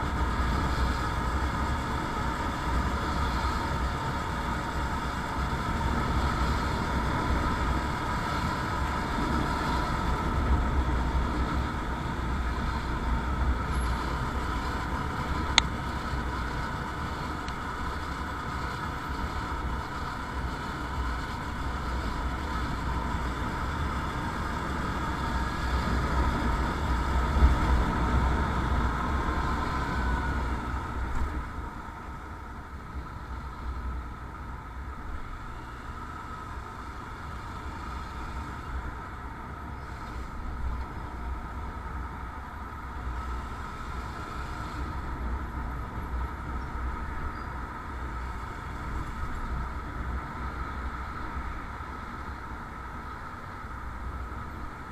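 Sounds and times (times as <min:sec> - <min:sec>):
motorcycle engine and road noise: 0:00.0 - 0:54.9.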